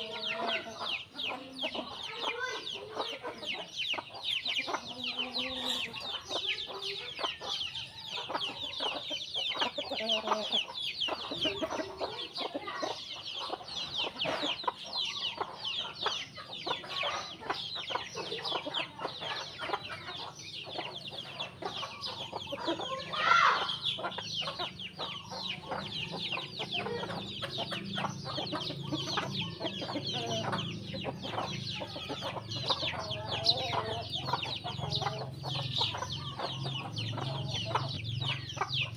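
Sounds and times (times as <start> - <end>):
chickens clucking: 0.0 - 38.9
sparrows chirping: 0.0 - 38.9.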